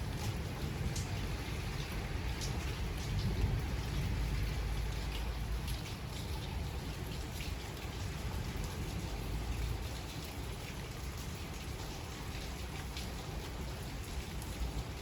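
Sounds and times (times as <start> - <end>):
raindrop hits: 0.0 - 6.5
rain falling: 0.0 - 15.0.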